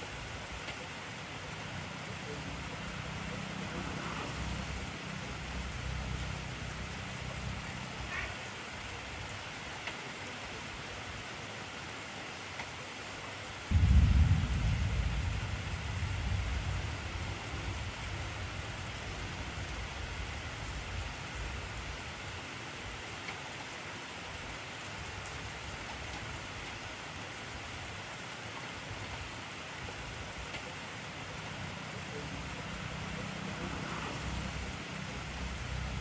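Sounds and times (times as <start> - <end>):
heavy rain falling: 0.0 - 36.0
thunder rumbling: 13.7 - 21.0, 32.1 - 36.0.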